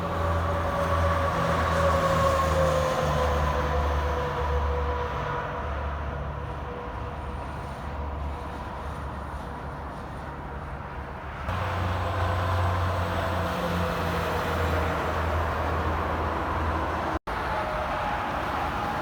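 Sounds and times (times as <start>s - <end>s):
highway traffic passing: 5.6s - 19.0s.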